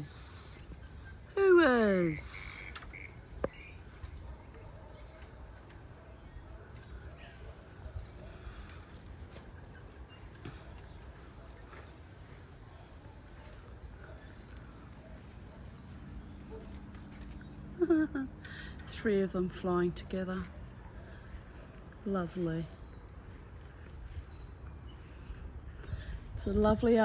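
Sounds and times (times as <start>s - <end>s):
faint bird chirps: 0.0s - 18.7s.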